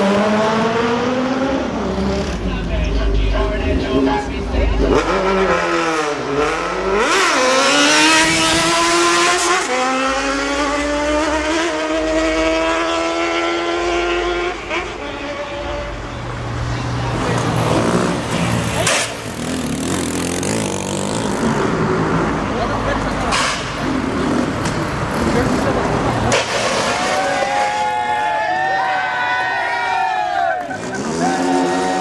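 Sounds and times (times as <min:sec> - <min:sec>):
road and traffic rumble: 0:00.0 - 0:32.0
motorcycle accelerating hard: 0:04.9 - 0:14.9, 0:17.1 - 0:22.3, 0:23.8 - 0:26.1.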